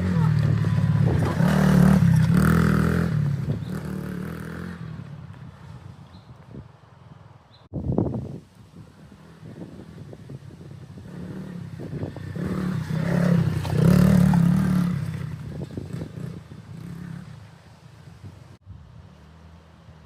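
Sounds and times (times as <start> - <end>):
minibike engine passing by: 0.0 - 5.9, 8.8 - 20.0.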